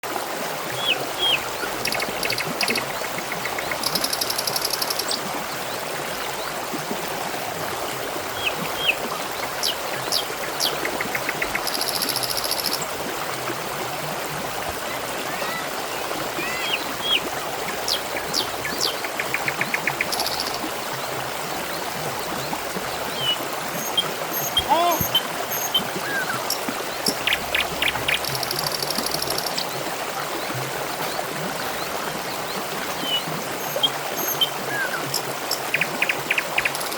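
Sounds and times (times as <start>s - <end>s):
water trickling and gurgling: 0.0s - 36.9s
bird chirps: 23.2s - 29.6s, 33.0s - 35.7s
rapid bird trills: 23.2s - 29.6s.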